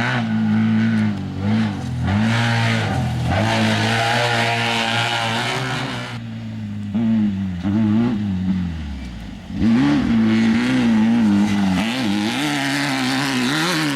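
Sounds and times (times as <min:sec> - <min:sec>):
race car engine revving: 0:00.0 - 0:13.9.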